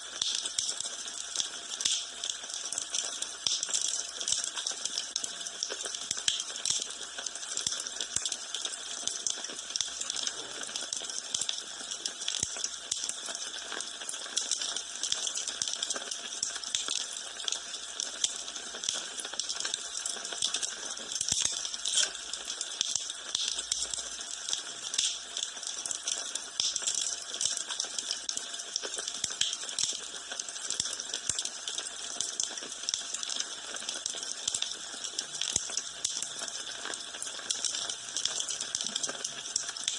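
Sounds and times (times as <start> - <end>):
wood fire crackling: 0.2 - 39.9.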